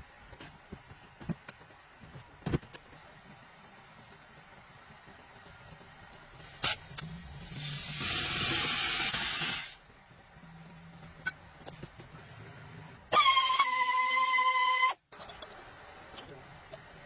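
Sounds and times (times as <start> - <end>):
hissing spray: 6.4 - 9.8.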